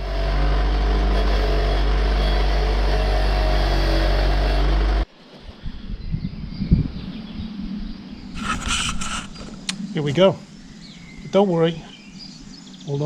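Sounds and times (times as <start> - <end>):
machine drone with deep hum: 0.0 - 5.1.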